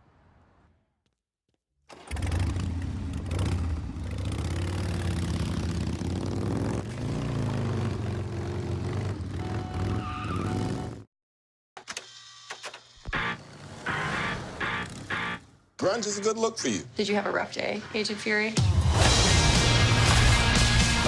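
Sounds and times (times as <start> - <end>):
motorcycle engine revving: 1.9 - 11.1, 13.0 - 15.4.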